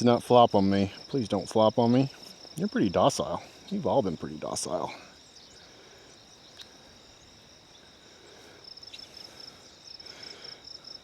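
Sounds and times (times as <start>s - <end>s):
insects trilling: 0.0s - 11.0s
faint click: 6.5s - 6.8s.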